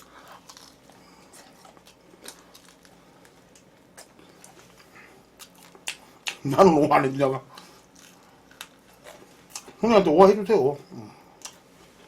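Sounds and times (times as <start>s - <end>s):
faint chewing with crunches: 0.0s - 6.6s, 7.4s - 9.8s, 10.9s - 12.0s.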